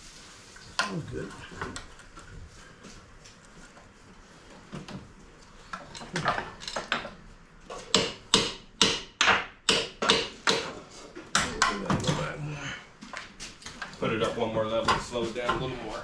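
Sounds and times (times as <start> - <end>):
hammer strikes: 7.8 - 12.2.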